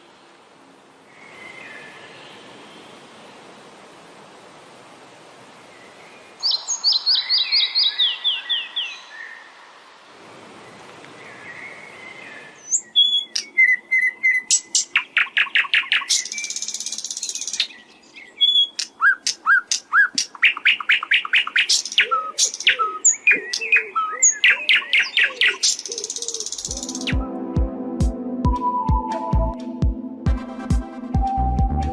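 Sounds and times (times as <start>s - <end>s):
nightingale singing: 5.8s - 9.6s, 11.2s - 27.4s
music with steady beat: 26.7s - 31.9s.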